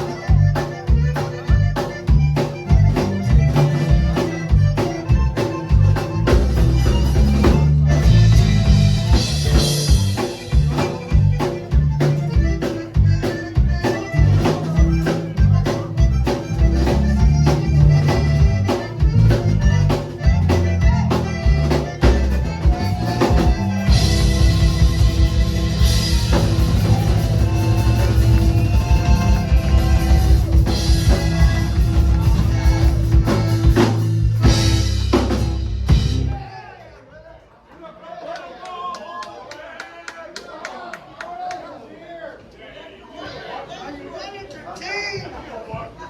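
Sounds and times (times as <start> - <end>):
accordion playing: 0.0 - 36.3
bass: 0.0 - 36.5
drum kit: 0.0 - 36.5
guitar: 0.0 - 36.5.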